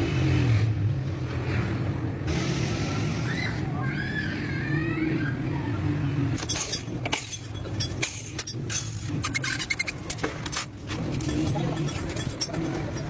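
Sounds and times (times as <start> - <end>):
metallic clinks and knocks: 6.4 - 13.0.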